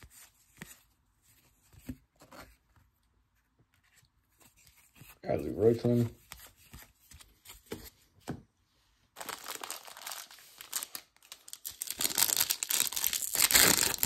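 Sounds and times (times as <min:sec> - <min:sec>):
foil wrapper crinkling: 0:09.2 - 0:14.0.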